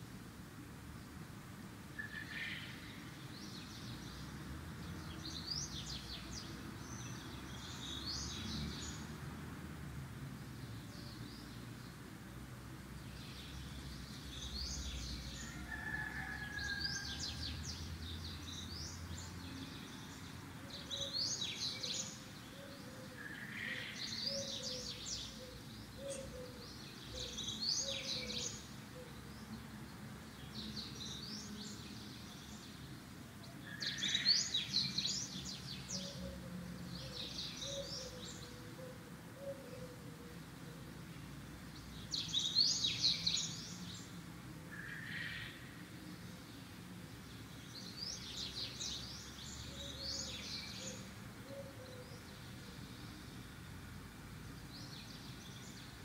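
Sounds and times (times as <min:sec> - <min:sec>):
small birds chirping: 0:41.6 - 0:44.3.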